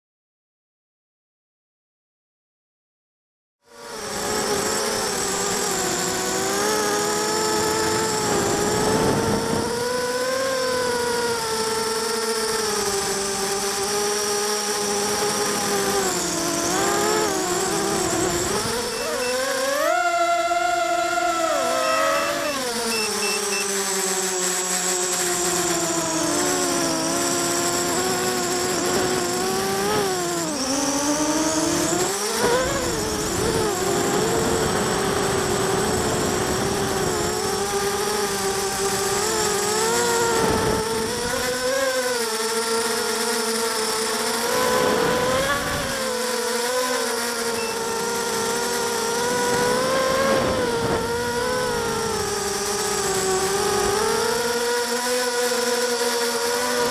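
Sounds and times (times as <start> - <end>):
quadcopter propellers buzzing: 3.6 - 56.9
wind rumbling on microphone: 7.6 - 10.1, 49.3 - 52.4.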